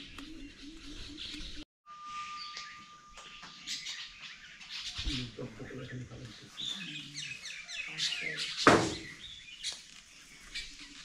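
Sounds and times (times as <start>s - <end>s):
birds chirping: 0.0s - 11.0s
sharp thump: 8.7s - 9.1s.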